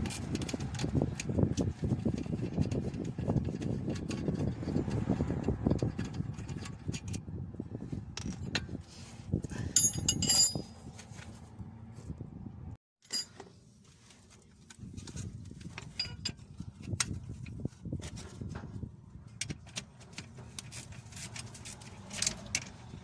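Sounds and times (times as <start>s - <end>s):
metal tools clattering: 9.6s - 10.9s, 13.0s - 13.4s, 15.8s - 16.5s
ringing metallic clinks: 9.7s - 10.8s.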